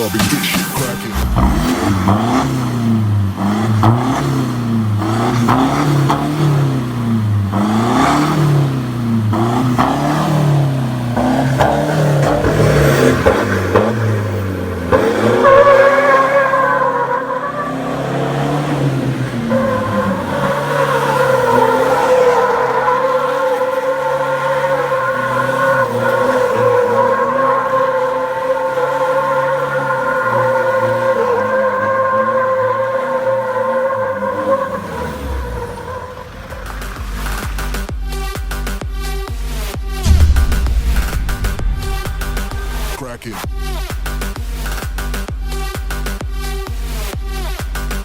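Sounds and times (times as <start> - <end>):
pickup engine revving: 0.0 - 37.9
high-pitched tyre squeal: 0.4 - 37.7.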